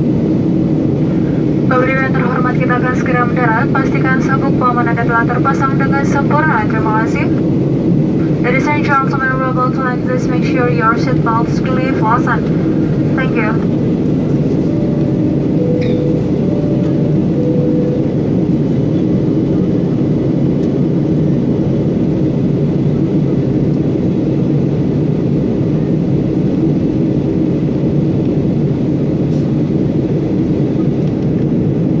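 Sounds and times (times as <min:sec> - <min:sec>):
airliner cabin engine rush: 0:00.0 - 0:32.0.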